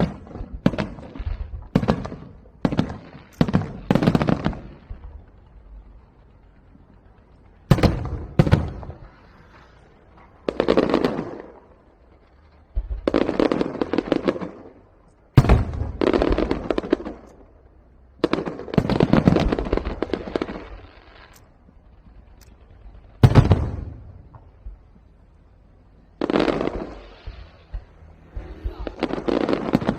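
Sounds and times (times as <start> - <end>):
fireworks bangs: 0.0 - 29.9
fireworks crackling: 0.0 - 29.9.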